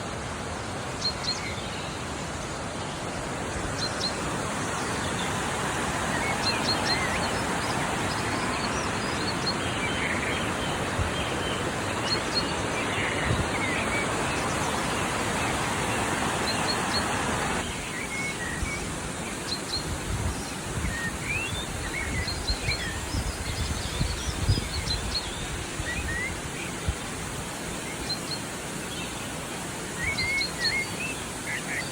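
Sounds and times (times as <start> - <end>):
steady rushing noise: 0.0 - 19.2
small birds chirping: 0.6 - 31.9.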